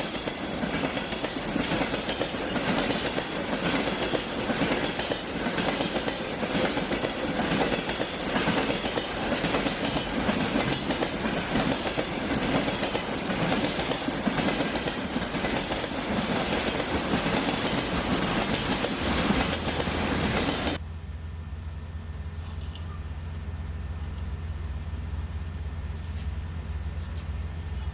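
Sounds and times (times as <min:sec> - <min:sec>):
train wheels clattering on track: 0:00.0 - 0:20.8.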